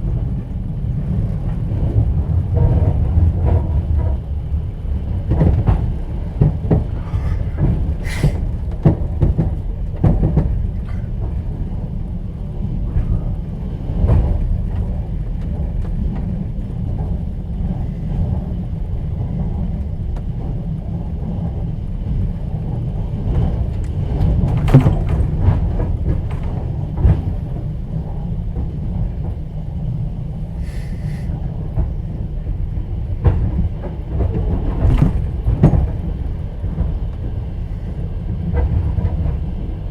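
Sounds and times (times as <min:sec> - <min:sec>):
train car low rumble: 0:00.0 - 0:39.9.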